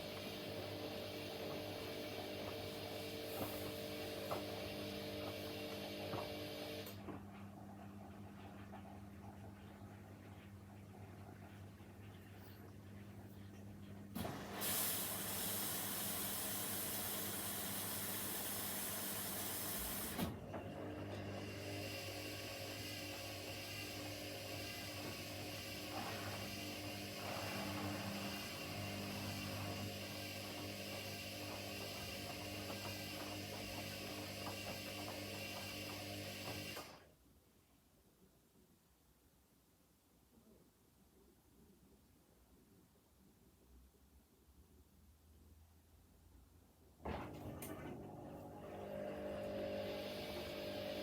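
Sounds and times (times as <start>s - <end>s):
water hissing through inlet valve: 14.4s - 20.2s.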